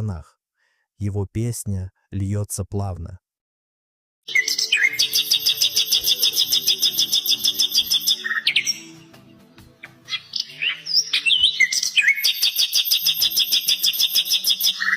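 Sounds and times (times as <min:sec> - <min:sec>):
nightingale singing: 0:04.3 - 0:14.9.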